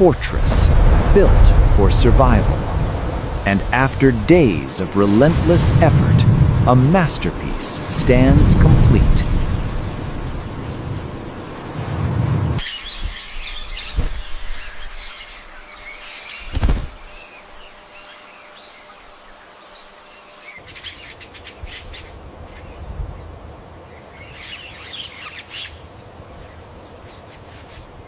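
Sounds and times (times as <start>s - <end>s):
low thumps: 0.0s - 12.6s
small birds chirping: 12.6s - 28.0s.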